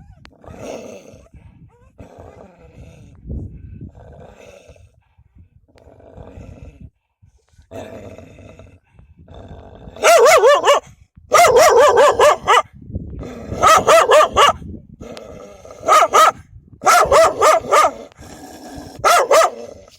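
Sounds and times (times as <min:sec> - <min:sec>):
dogs barking fiercely: 0:10.0 - 0:12.7, 0:13.5 - 0:14.6, 0:15.7 - 0:18.2, 0:18.8 - 0:19.8.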